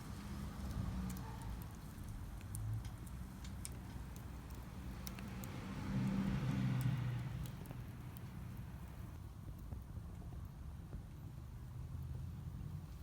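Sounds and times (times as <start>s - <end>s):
wood fire crackling: 0.0s - 9.2s.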